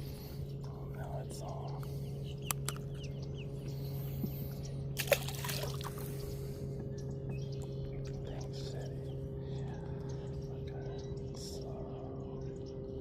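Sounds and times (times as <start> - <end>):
steady low hum: 0.0 - 13.0
water splashing: 5.0 - 6.2.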